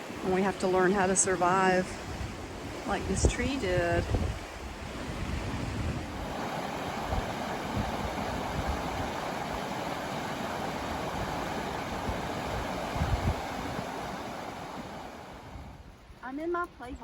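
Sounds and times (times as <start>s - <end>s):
wind buffeting microphone: 0.0s - 17.0s
river water rushing over rocks: 6.1s - 15.5s.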